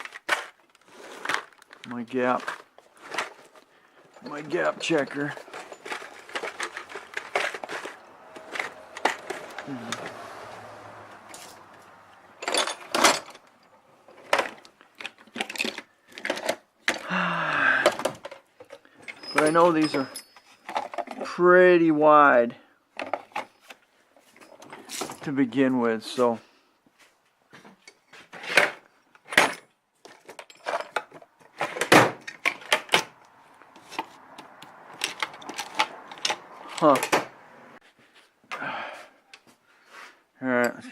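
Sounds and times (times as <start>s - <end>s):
metal hand tools clinking: 2.4s - 16.4s, 18.7s - 21.3s.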